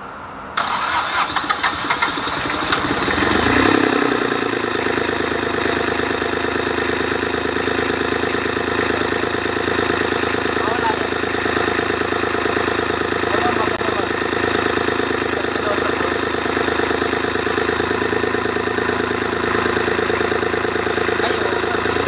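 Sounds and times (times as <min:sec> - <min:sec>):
diesel engine starter cranking: 0:00.6 - 0:03.8
diesel engine running: 0:00.6 - 0:22.0.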